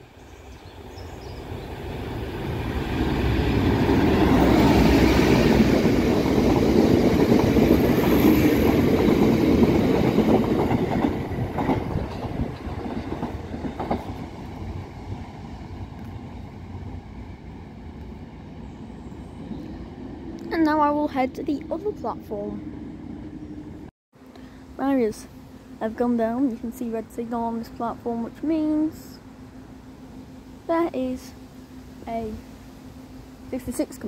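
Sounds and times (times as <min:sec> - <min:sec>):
diesel freight train passing: 0:00.0 - 0:23.9, 0:24.6 - 0:34.0
train wheel knocks: 0:06.2 - 0:14.3.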